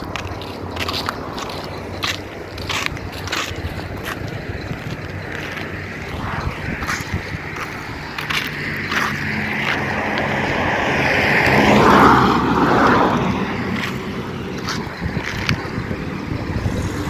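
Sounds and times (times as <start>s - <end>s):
vehicle passing by: 6.0s - 14.8s, 15.4s - 17.0s.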